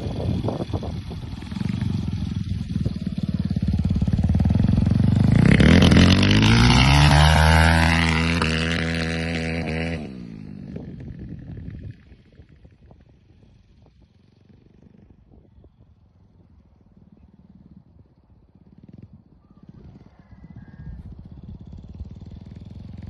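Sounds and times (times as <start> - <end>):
dirt bike engine revving: 0.0 - 11.9
faint engine sound: 0.0 - 23.0.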